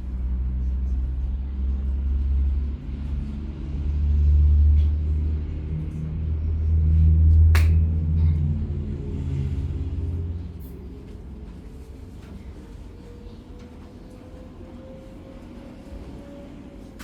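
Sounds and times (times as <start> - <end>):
sharp click: 7.6 - 7.9.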